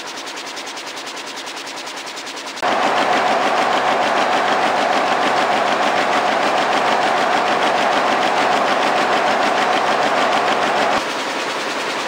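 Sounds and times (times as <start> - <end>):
weaving looms clattering: 2.6 - 12.0.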